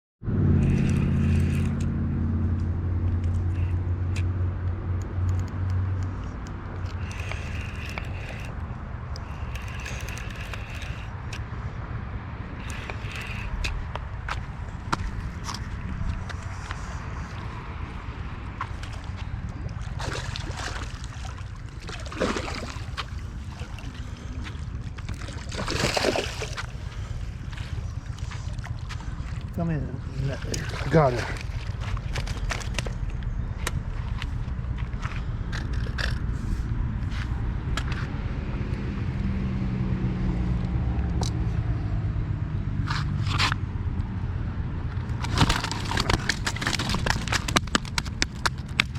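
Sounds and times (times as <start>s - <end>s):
wind rumble on microphone: 0.2s - 48.9s
motor humming: 0.4s - 2.1s, 5.3s - 16.8s
water splashing: 18.6s - 27.8s, 28.4s - 32.8s.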